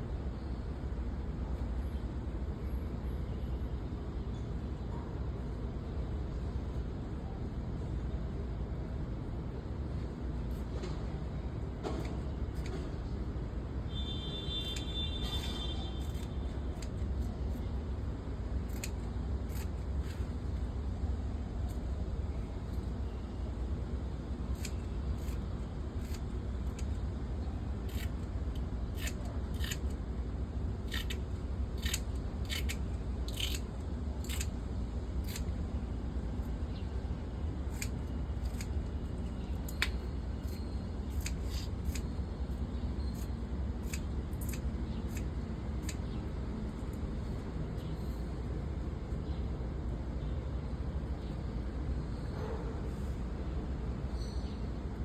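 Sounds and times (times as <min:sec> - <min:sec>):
sharp snipping clicks: 0:14.6 - 0:17.6, 0:18.6 - 0:20.2, 0:24.5 - 0:25.4, 0:26.0 - 0:27.0, 0:27.8 - 0:30.0, 0:30.8 - 0:35.6, 0:37.6 - 0:47.0.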